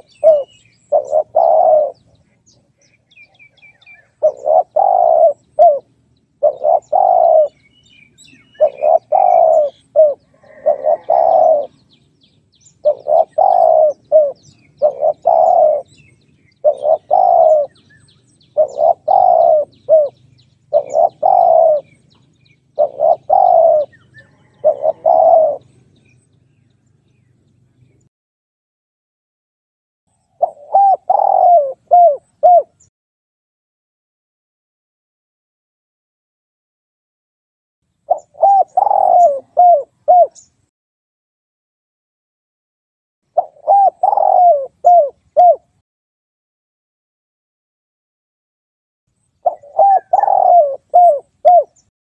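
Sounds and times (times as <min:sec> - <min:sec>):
dove cooing: 0:00.0 - 0:12.0, 0:12.6 - 0:26.2, 0:30.3 - 0:32.9, 0:38.1 - 0:40.5, 0:43.3 - 0:45.8, 0:49.4 - 0:51.9.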